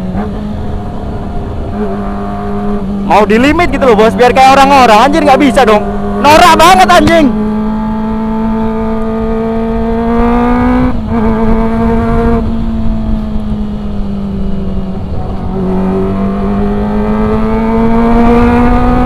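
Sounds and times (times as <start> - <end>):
motorcycle engine revving: 0.0 - 19.0
wind and road rumble: 0.0 - 19.0.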